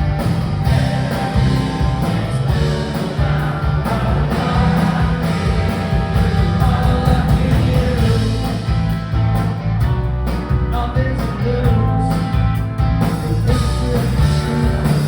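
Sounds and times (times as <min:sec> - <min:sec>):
bass guitar: 0:00.0 - 0:15.0
drums: 0:00.0 - 0:15.0
electric guitars: 0:00.0 - 0:15.0
person singing: 0:00.7 - 0:08.6.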